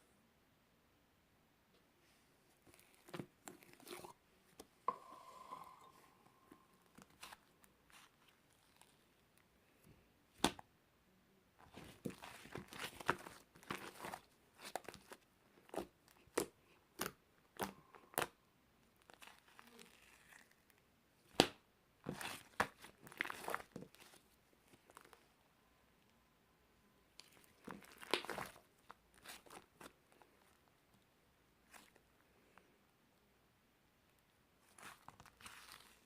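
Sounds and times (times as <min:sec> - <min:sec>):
close-up crinkling and rustling: 0:02.0 - 0:05.0, 0:06.4 - 0:10.1, 0:11.6 - 0:20.8, 0:22.0 - 0:25.4, 0:27.1 - 0:32.8, 0:34.2 - 0:36.0.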